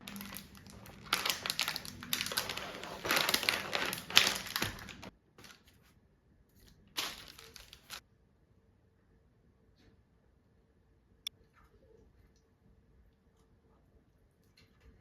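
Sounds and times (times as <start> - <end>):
crinkling rustling handling noise: 0.0 - 5.9, 6.6 - 8.0.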